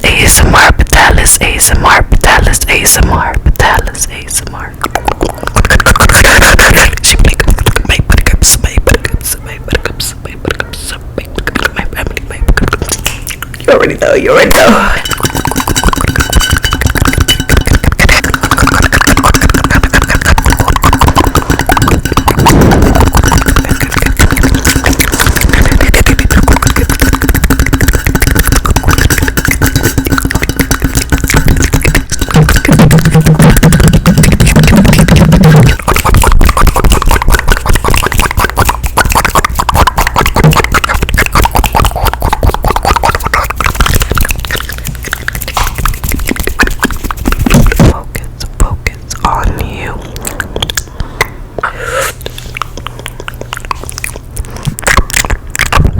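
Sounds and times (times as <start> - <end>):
wet mouth clicks and pops: 0.0 - 13.7, 14.5 - 51.4, 52.1 - 55.9.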